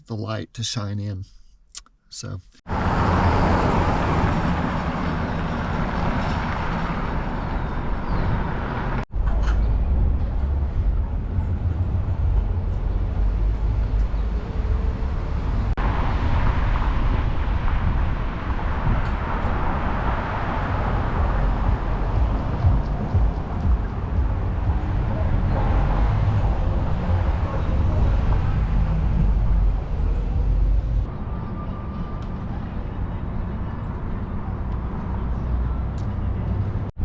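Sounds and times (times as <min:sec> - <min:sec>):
city street traffic rumble: 0:02.6 - 0:37.0.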